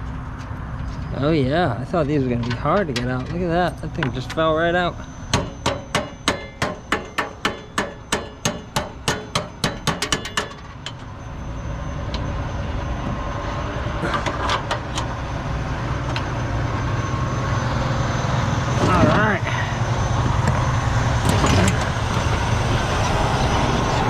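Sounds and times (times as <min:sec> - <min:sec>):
hammer blows: 0:05.3 - 0:10.9.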